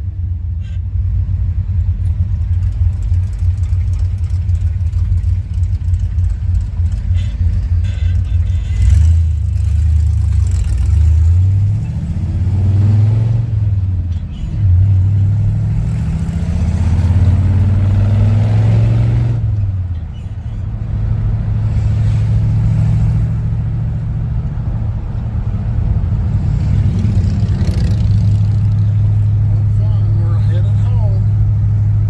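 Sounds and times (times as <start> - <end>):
car engine accelerating: 1.5 - 32.0.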